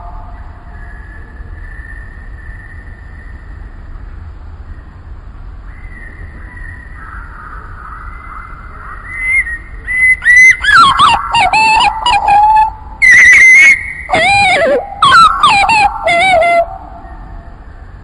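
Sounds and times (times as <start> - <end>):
faint thin steady tones: 0.0 - 18.0
bird whistling phrases: 8.2 - 17.5.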